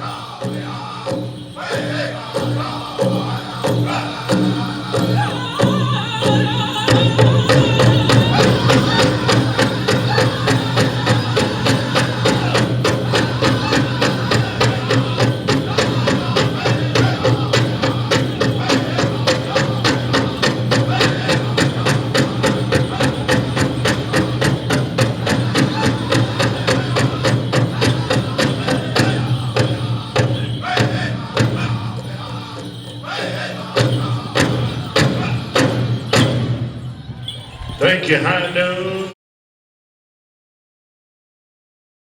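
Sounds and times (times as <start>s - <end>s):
group singing: 0.0s - 39.2s
large drum beating: 6.9s - 32.9s.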